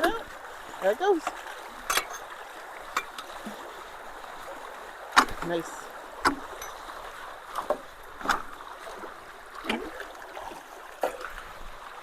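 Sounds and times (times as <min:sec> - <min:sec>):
sharp knocks or splashes: 0:00.0 - 0:00.3, 0:05.0 - 0:11.4
creek water rushing: 0:00.0 - 0:12.0.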